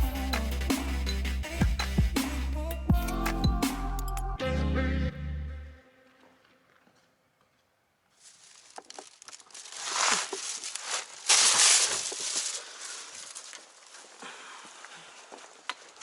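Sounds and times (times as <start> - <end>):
rustling crinkling handling: 8.1 - 16.0.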